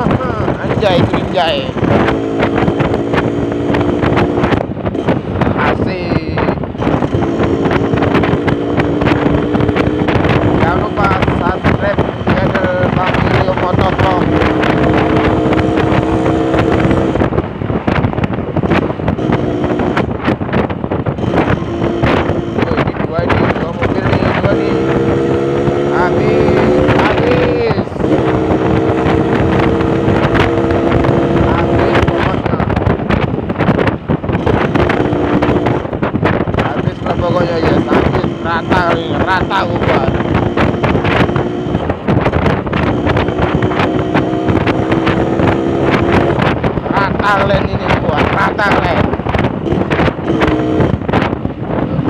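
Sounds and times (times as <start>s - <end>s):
motorcycle engine running: 0.0s - 52.0s
wind noise on microphone: 0.0s - 52.0s.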